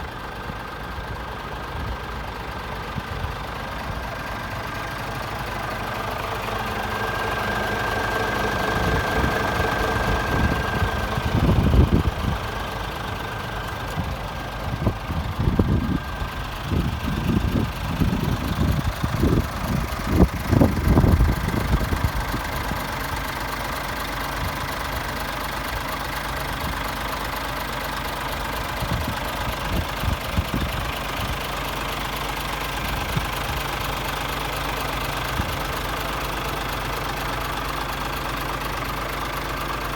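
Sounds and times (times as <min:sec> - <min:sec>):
diesel truck engine idling: 0:00.0 - 0:39.9
low thumps and rumbles: 0:08.7 - 0:22.8.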